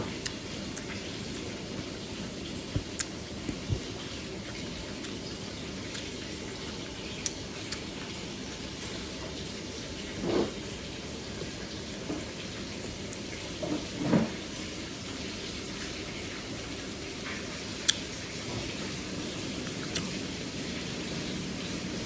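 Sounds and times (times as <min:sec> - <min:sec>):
steady hiss: 0:14.4 - 0:22.0
chewing or swallowing: 0:19.5 - 0:20.9.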